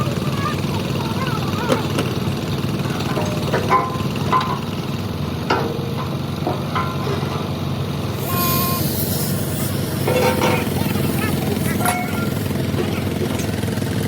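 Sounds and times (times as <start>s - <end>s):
engine running: 0.0s - 14.0s
metallic clinks and knocks: 5.5s - 7.5s
high hiss: 8.2s - 10.1s.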